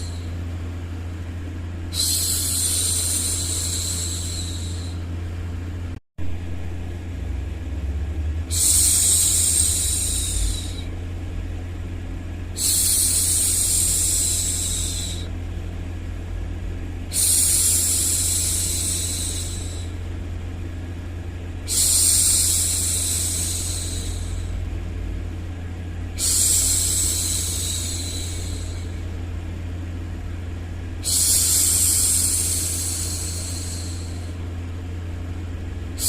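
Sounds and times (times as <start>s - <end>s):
steady low noise: 0.0s - 36.0s
woman shushing: 1.9s - 5.0s, 8.5s - 10.9s, 12.6s - 15.3s, 26.2s - 28.9s, 31.0s - 34.4s.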